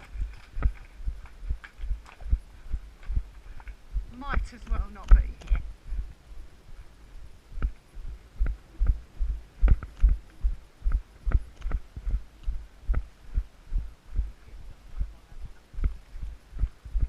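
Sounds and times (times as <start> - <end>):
horse hoofbeats: 0.0 - 6.1.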